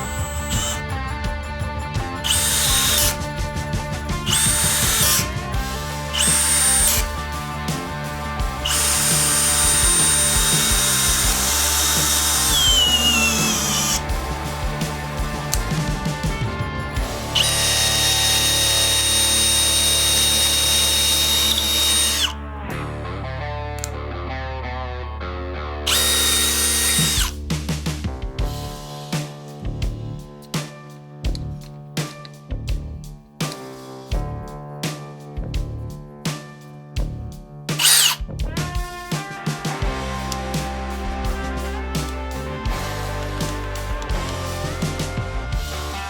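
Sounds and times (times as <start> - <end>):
hammer drill whining: 0.0 - 1.4, 2.0 - 22.4, 25.9 - 27.4, 37.8 - 38.2, 39.8 - 46.0
background music: 0.0 - 46.0.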